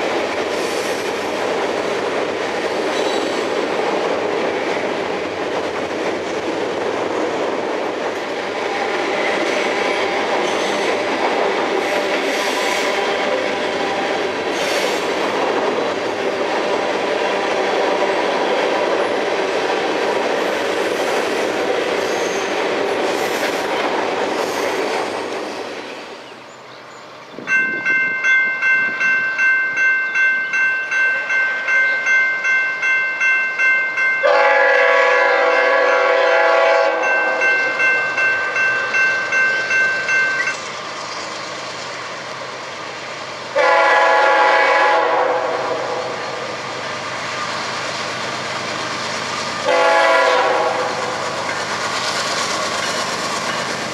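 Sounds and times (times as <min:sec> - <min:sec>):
freight train rolling past: 0:00.0 - 0:53.9
crossing bell dinging: 0:27.4 - 0:40.8
locomotive horn: 0:34.2 - 0:37.4, 0:43.6 - 0:46.3, 0:49.6 - 0:51.2.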